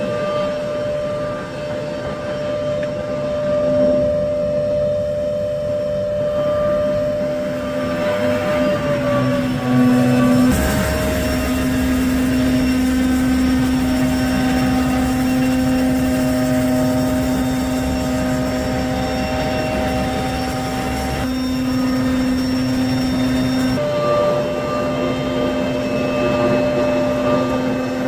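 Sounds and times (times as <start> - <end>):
street sweeper running: 5.7 - 27.0.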